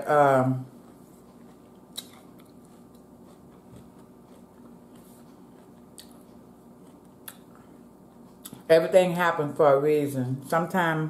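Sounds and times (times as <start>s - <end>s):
chewing food: 0.5s - 8.7s.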